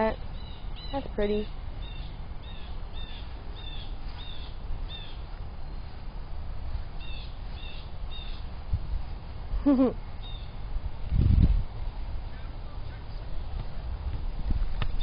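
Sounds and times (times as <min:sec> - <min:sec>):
bird chirping: 0:00.0 - 0:05.9, 0:07.0 - 0:08.5, 0:09.7 - 0:10.6
steady low rumble: 0:00.0 - 0:15.0.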